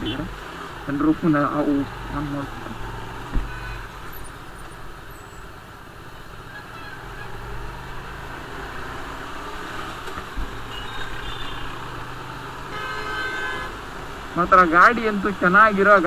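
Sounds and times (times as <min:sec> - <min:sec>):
wind and road noise: 0:00.0 - 0:16.0
thump: 0:03.2 - 0:03.7, 0:10.1 - 0:10.6.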